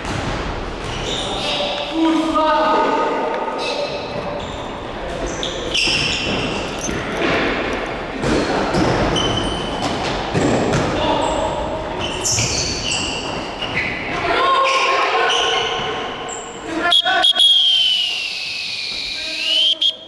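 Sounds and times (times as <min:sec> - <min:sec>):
distant voices: 0:00.5 - 0:20.0
shoes squeaking on court: 0:03.6 - 0:16.8
ball bouncing on floor: 0:05.2 - 0:11.2, 0:12.0 - 0:14.3.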